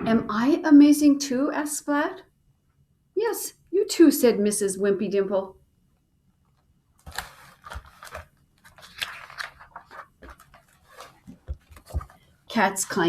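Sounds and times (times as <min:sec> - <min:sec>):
book pages rustling and turning: 0:06.5 - 0:13.0.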